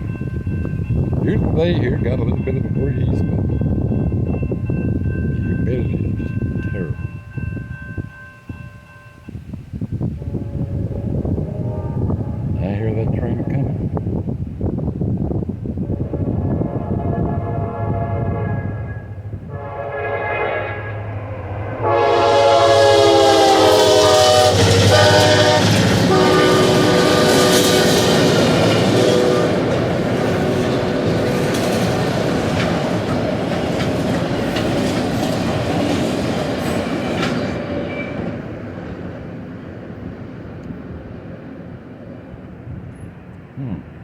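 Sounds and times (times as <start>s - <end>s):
locomotive air horn: 10.2s - 12.6s, 15.9s - 29.8s
train wheels on rails: 21.1s - 43.3s.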